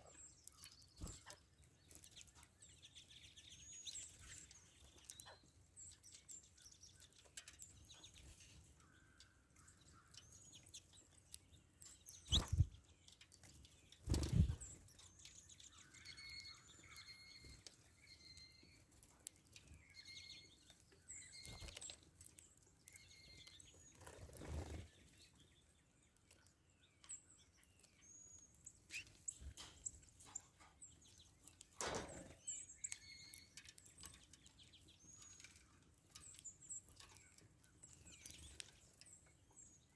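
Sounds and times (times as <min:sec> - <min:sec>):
songbirds chirping and calling: 0:00.0 - 0:39.9.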